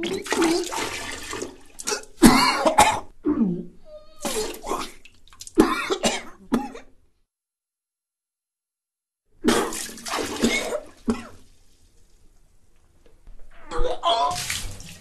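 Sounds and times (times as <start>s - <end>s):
liquid splashing: 0.0s - 2.4s, 4.3s - 5.7s, 9.4s - 12.3s, 14.3s - 15.0s
person retching and gagging: 0.0s - 6.9s, 9.4s - 11.4s, 13.5s - 15.0s.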